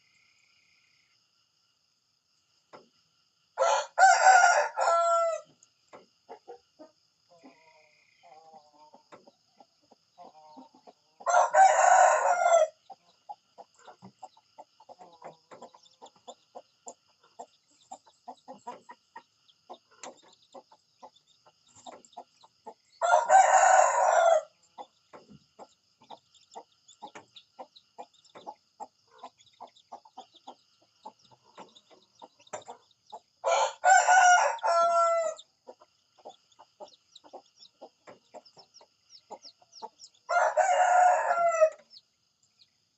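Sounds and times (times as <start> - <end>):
rooster crowing: 3.6 - 5.5, 11.2 - 12.8, 23.0 - 24.6, 33.4 - 35.4, 40.3 - 41.9.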